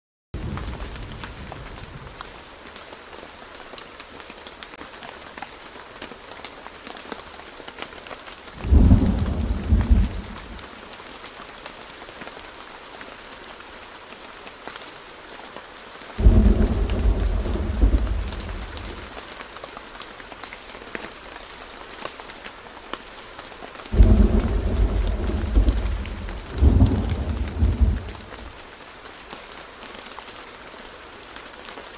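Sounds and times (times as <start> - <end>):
steady rain: 0.4 - 31.9
thunder claps: 8.6 - 10.8, 16.2 - 19.2, 23.9 - 28.6.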